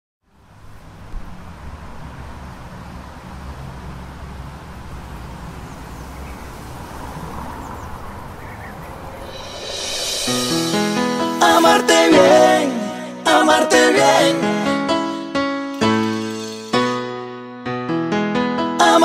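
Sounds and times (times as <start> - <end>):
wind: 0.2 - 11.5
boat engine rumbling: 2.4 - 10.2
water hiss: 6.3 - 12.0
faint bird calls: 7.5 - 9.4.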